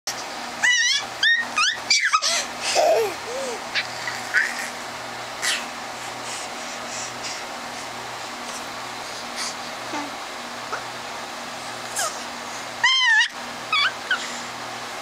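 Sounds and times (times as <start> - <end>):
dog yipping and whining: 0.6 - 2.4, 12.8 - 14.3.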